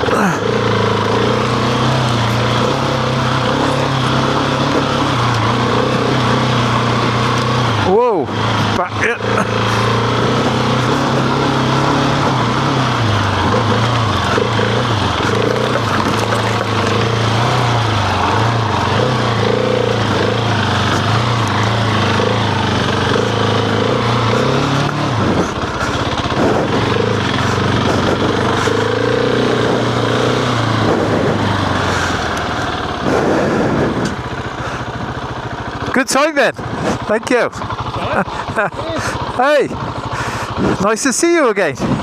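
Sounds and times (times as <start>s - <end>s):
motorcycle engine revving: 0.0s - 42.0s
wind noise: 25.0s - 28.8s, 30.6s - 31.8s, 33.0s - 34.3s, 41.8s - 42.0s.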